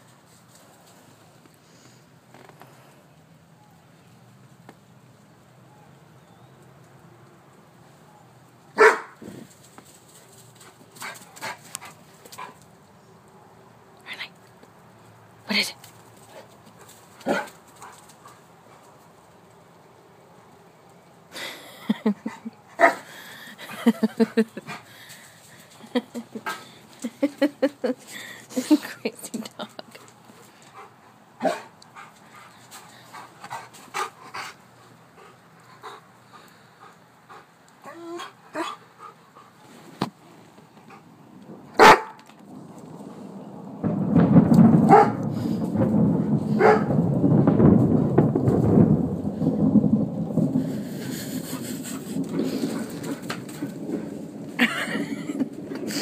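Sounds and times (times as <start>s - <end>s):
dog barking: 8.8s - 9.2s, 22.8s - 23.0s, 31.4s - 31.7s, 41.8s - 42.2s, 44.9s - 45.2s, 46.6s - 46.9s.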